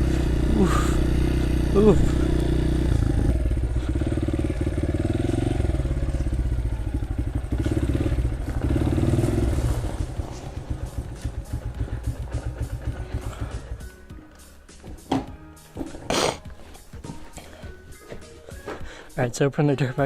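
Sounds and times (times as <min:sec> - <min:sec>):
small vehicle engine running: 0:00.0 - 0:14.2.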